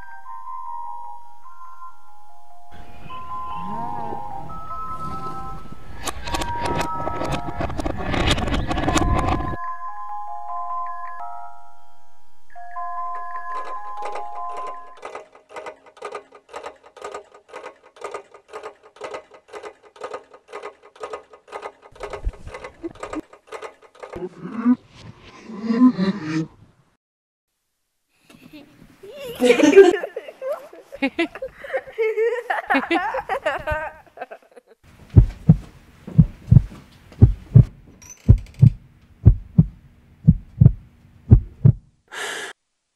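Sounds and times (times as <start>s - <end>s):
chime-like music tones: 0.0s - 7.6s, 9.6s - 15.0s
mechanical clockwork clicking: 13.4s - 24.2s, 38.0s - 38.8s
heartbeat thumps: 35.1s - 41.9s.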